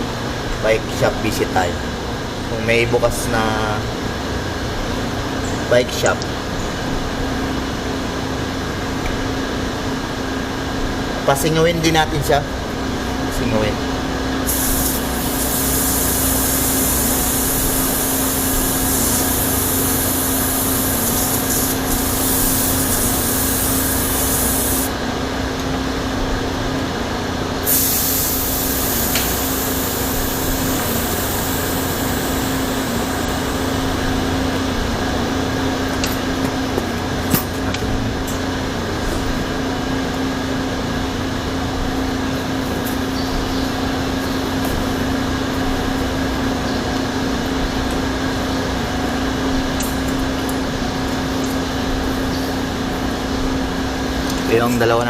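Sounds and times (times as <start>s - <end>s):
air hissing from tyre valve: 14.4s - 24.9s, 27.6s - 33.8s.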